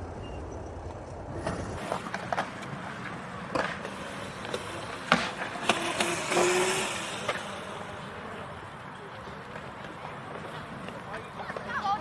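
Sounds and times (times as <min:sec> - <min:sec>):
skateboard wheels rolling on concrete: 0:00.0 - 0:12.0
skateboard knocks and clacks: 0:00.8 - 0:07.5.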